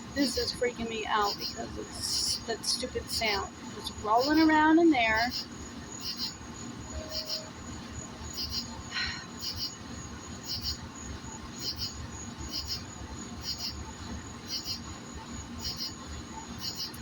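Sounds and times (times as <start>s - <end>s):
insect chirping: 0.0s - 17.0s
thin high whine: 6.3s - 9.8s.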